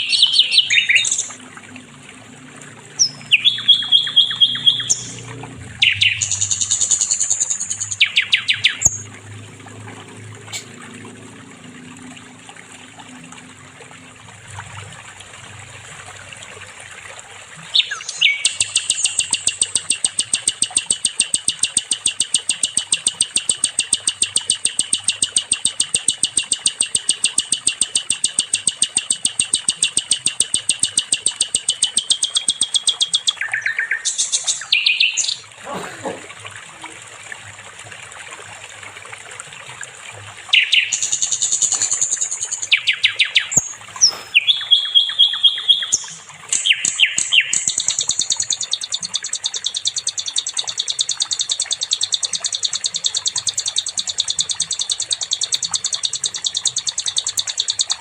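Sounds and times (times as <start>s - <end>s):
flycatcher singing: 0.0s - 1.4s, 3.0s - 9.1s, 17.8s - 35.4s, 40.5s - 58.0s.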